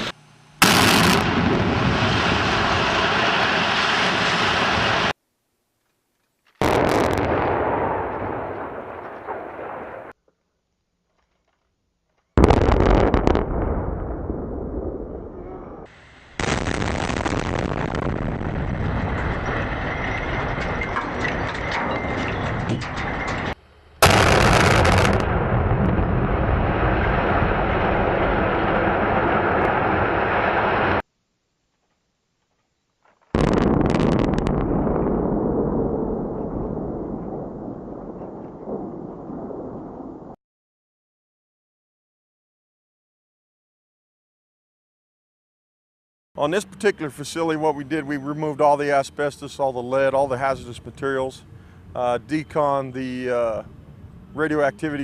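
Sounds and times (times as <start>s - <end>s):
demolition explosion blasts: 0.0s - 5.2s, 6.6s - 10.2s, 12.4s - 31.0s, 33.4s - 40.4s
rumbling: 12.4s - 31.0s, 33.4s - 40.4s
sharp cracks: 16.4s - 25.8s
building demolition roar: 17.4s - 31.0s.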